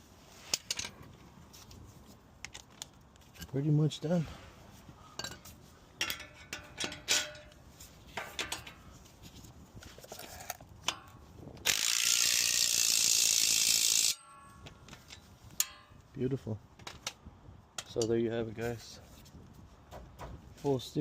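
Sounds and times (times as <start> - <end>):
hand tools clinking on metal: 5.2 - 7.6, 8.2 - 8.9, 13.8 - 16.1, 17.8 - 18.2
ratchet clicks: 11.6 - 14.3.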